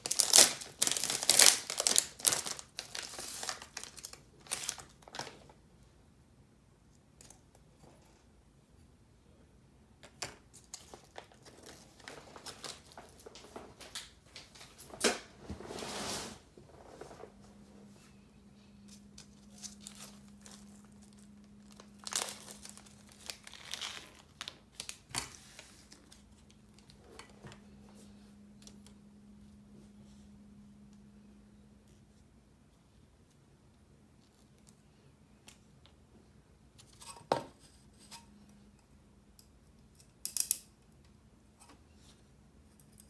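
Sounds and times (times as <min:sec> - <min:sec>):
packaging tearing: 0:00.0 - 0:05.3, 0:19.6 - 0:26.2
plastic and paper crinkling: 0:00.0 - 0:05.6, 0:10.7 - 0:15.4, 0:18.9 - 0:27.3
faint low hum: 0:16.4 - 0:43.0.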